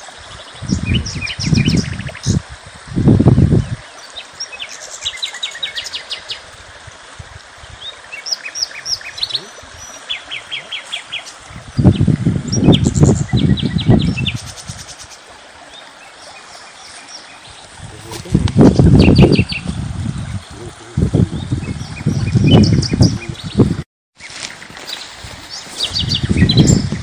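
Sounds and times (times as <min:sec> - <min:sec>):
steady outdoor hiss: 0:00.0 - 0:22.2, 0:22.8 - 0:27.0
small birds chirping: 0:07.8 - 0:27.0.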